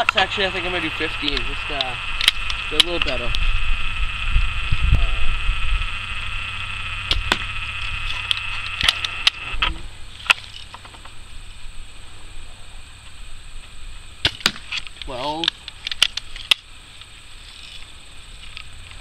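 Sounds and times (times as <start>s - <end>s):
high buzzing drone: 0.0s - 19.0s
air gun clicks and snaps: 1.3s - 3.4s, 7.1s - 9.4s, 14.2s - 17.1s.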